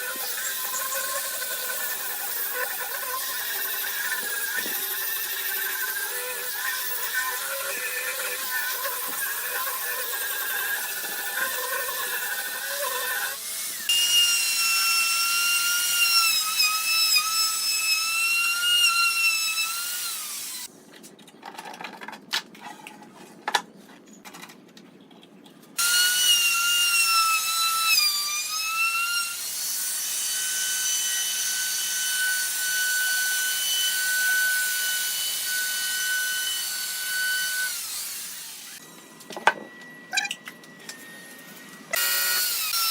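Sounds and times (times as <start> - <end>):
power drill whining: 30.4 - 42.9.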